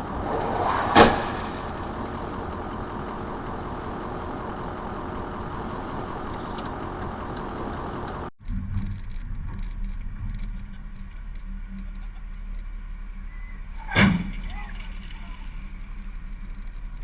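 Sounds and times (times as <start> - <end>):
vehicle collision bang: 0.0 - 4.4, 13.6 - 16.0
road traffic noise: 0.0 - 17.0.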